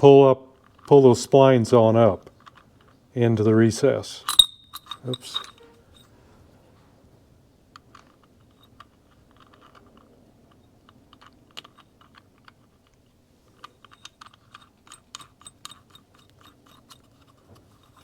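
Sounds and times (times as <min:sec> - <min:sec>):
small metallic clicks: 0:02.2 - 0:03.0, 0:07.7 - 0:18.0.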